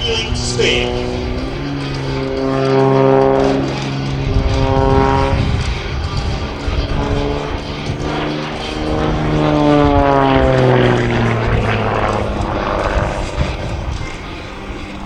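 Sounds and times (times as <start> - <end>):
plane engine and propeller: 0.0 - 15.0.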